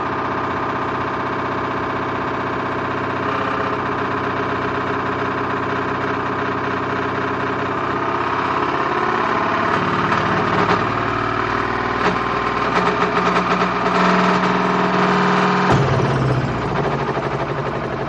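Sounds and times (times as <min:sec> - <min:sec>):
washing machine motor whine: 0:00.0 - 0:18.0
sharp knocks from washing machine: 0:15.7 - 0:18.0.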